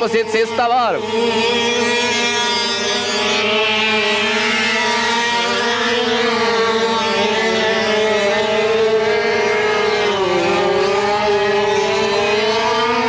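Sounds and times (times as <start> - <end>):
motorcycle engine revving high: 0.0 - 13.0.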